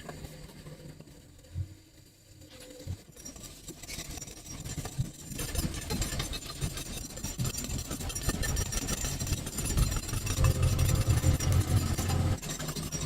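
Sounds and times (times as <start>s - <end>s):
engine running with dense rattling: 4.9s - 13.0s.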